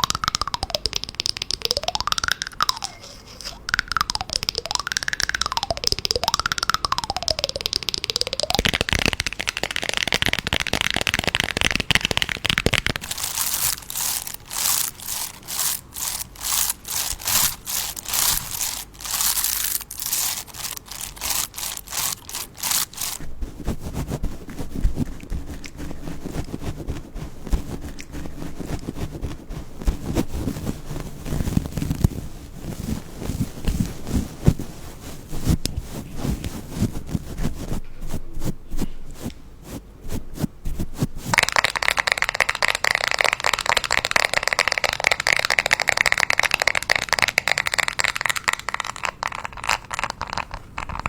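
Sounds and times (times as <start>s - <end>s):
rapid clicking and rattling: 0.0s - 2.9s, 3.6s - 23.2s
crackling: 0.0s - 37.8s
dull rustling: 11.2s - 41.4s.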